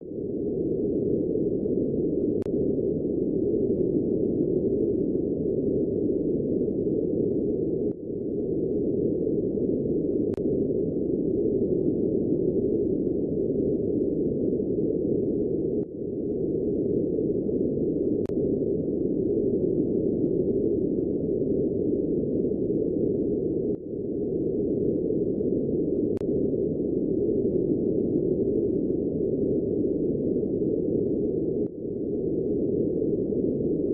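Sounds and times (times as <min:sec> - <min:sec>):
faint tick: 0:02.4 - 0:02.6, 0:10.3 - 0:10.5, 0:18.2 - 0:18.4, 0:26.1 - 0:26.4.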